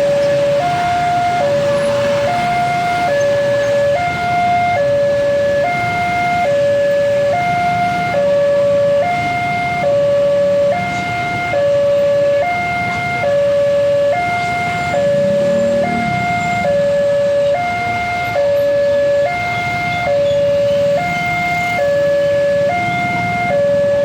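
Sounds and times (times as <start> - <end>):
traffic rumble: 0.0 - 24.0
two-tone crossing alarm: 0.0 - 24.0.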